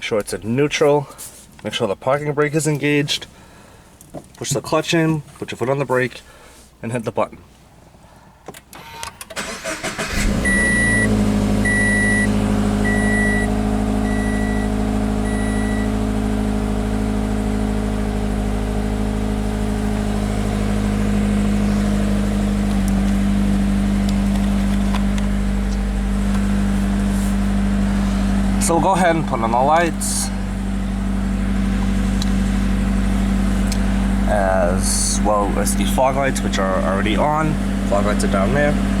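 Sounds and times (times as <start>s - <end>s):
car engine cranking and idling: 8.5s - 39.0s
car warning chime beeping: 10.1s - 16.1s.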